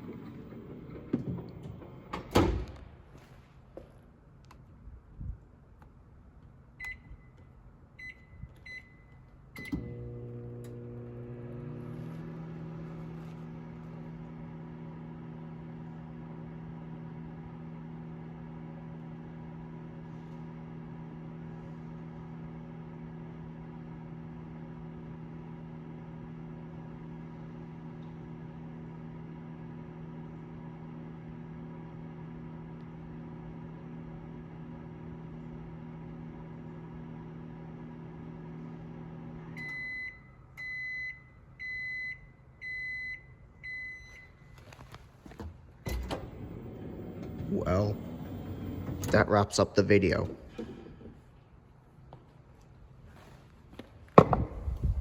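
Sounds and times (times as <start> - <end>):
microwave humming: 0.0 - 2.7, 9.5 - 19.9, 44.5 - 51.2
microwave end beeping: 8.0 - 12.6.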